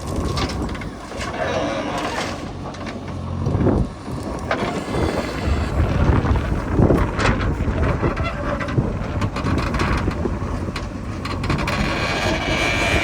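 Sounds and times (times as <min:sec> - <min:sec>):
diesel engine running: 0:00.0 - 0:13.0
wind on microphone: 0:03.3 - 0:13.0.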